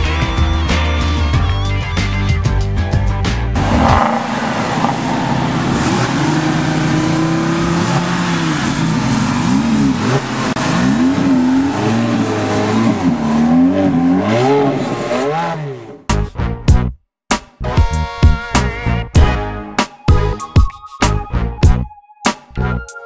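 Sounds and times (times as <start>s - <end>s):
sports car engine revving: 3.6s - 16.1s.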